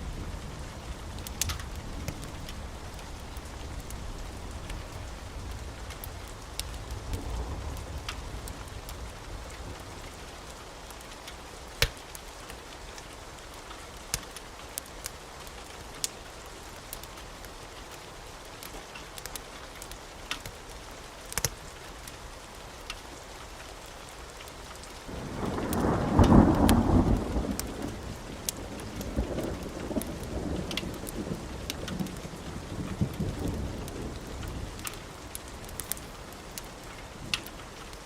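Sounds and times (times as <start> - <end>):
steady rain: 0.0 - 38.0
thunder rumbling: 25.1 - 37.9.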